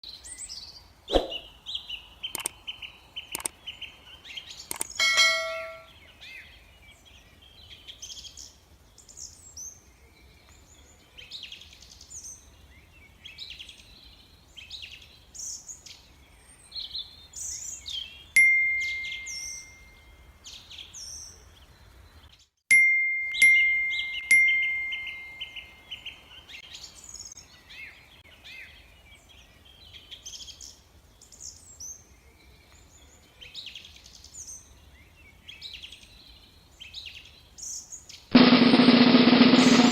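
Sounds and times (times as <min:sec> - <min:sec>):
songbirds chirping and singing: 0:00.1 - 0:22.5, 0:23.4 - 0:39.9
clicks: 0:02.3 - 0:02.6, 0:03.3 - 0:03.6, 0:04.7 - 0:05.0
bell-like dings: 0:05.0 - 0:05.9, 0:18.4 - 0:20.0, 0:22.7 - 0:25.6.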